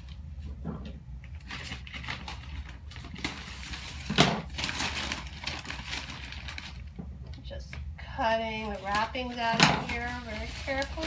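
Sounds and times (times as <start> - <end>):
paper rustling and crinkling: 1.2 - 7.0, 8.5 - 11.0.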